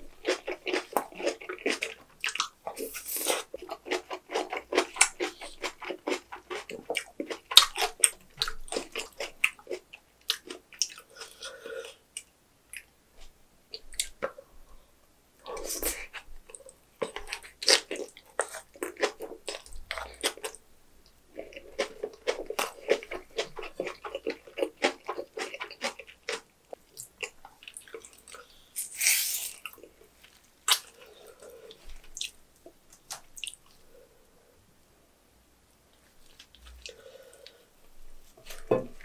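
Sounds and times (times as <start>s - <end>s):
wet chewing: 0.1s - 11.5s, 21.4s - 28.5s
short hissing burst: 28.8s - 29.6s.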